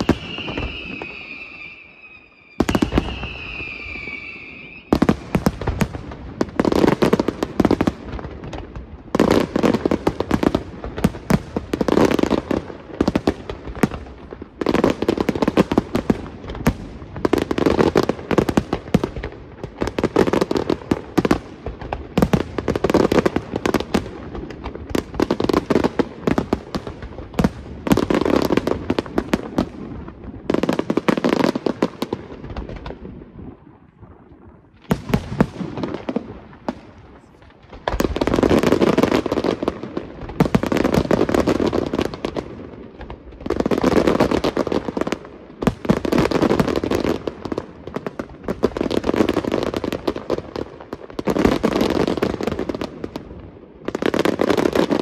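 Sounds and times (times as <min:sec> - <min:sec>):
firework whistle: 0:00.0 - 0:05.5
fireworks cracks and bangs: 0:00.0 - 0:55.0.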